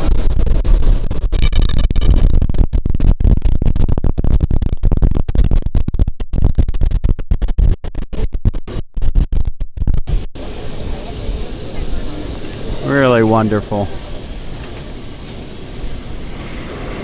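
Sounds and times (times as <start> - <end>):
electric tram rumbling and rattling: 10.1 - 17.0.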